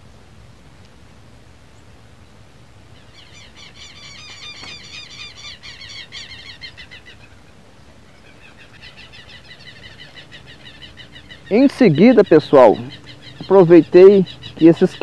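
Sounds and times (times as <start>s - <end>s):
bird harsh repeated calls: 3.0s - 15.0s.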